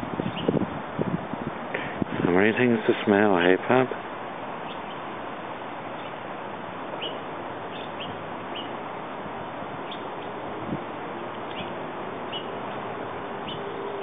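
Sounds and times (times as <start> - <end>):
small birds chirping: 0.0 - 0.6, 4.6 - 5.2, 5.8 - 6.2, 6.9 - 8.8, 9.8 - 10.4, 11.2 - 14.0
steady background hiss: 0.0 - 14.0.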